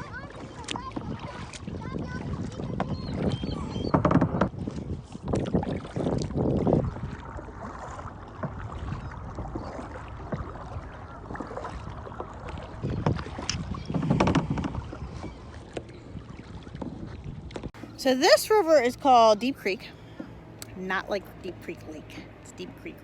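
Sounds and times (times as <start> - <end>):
paddle splashing in water: 0.0 - 18.6
wind on microphone: 0.0 - 18.7.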